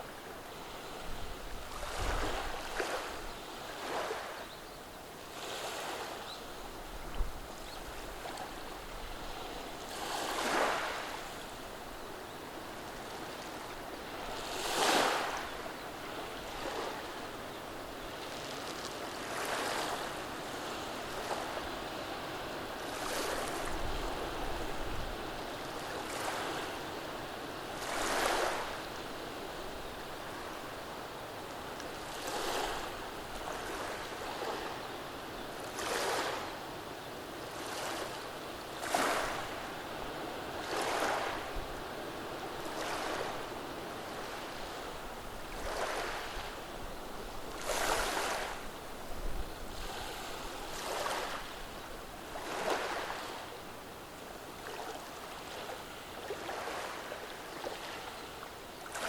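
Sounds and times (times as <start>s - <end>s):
waves washing over pebbles: 45.6s - 46.4s, 47.4s - 48.7s.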